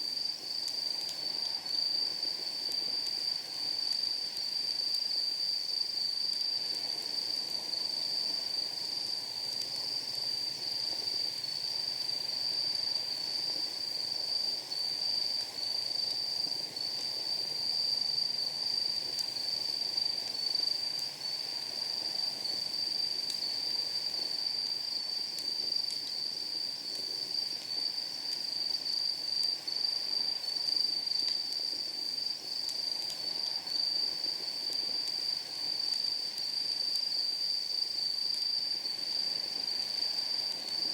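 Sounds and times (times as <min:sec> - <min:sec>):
night insects trilling: 0:00.0 - 0:40.9.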